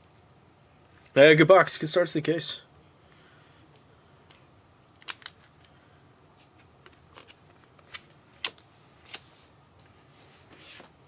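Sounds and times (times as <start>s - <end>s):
cards clicking and snapping: 5.0s - 5.7s.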